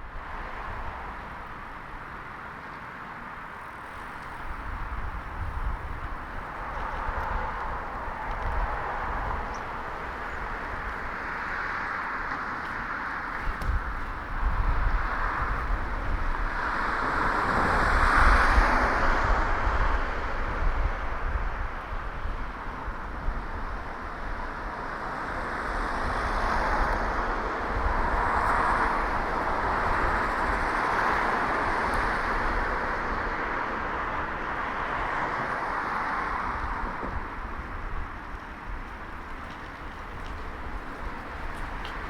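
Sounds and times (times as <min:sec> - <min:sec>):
wind rumble on microphone: 0:00.0 - 0:02.5, 0:03.1 - 0:42.0
road traffic passing: 0:00.0 - 0:42.0.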